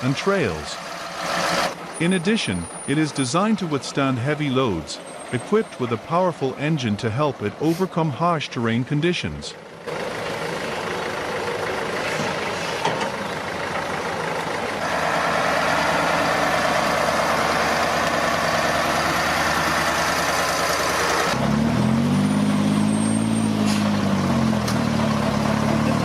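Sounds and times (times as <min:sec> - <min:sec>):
heavy truck engine running: 0:00.0 - 0:26.0
engine revving: 0:00.8 - 0:02.2, 0:14.8 - 0:26.0.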